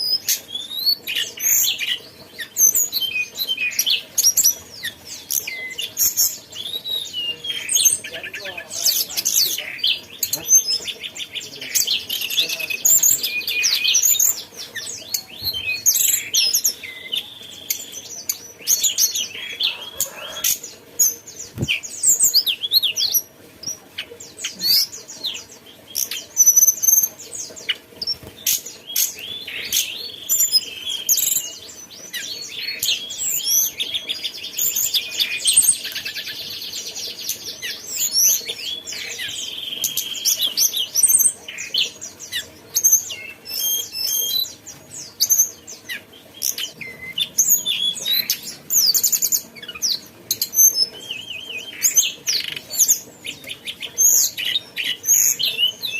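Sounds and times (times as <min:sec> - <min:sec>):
songbird chirping and whistling: 0:45.2 - 0:55.9.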